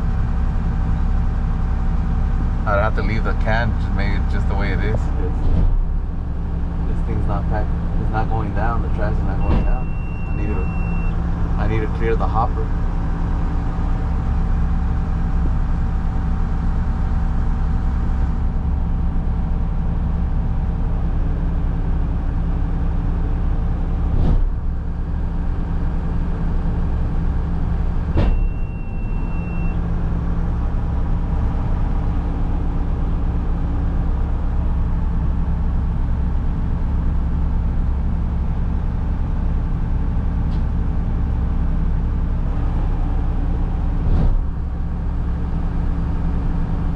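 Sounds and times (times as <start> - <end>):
garbage truck engine running: 0.0 - 46.9
short high beep: 9.4 - 11.2, 28.3 - 29.8.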